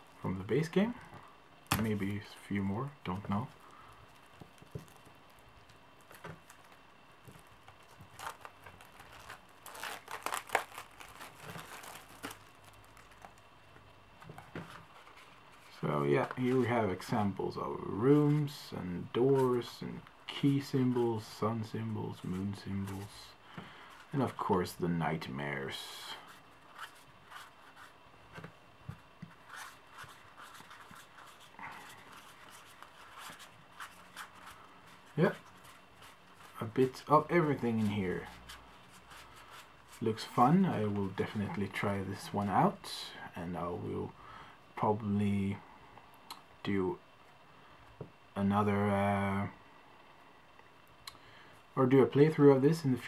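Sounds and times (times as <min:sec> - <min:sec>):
playing cards rustling and tapping: 0:00.9 - 0:02.2, 0:03.1 - 0:17.3, 0:26.7 - 0:42.6
packaging crinkling and rustling: 0:03.3 - 0:13.5.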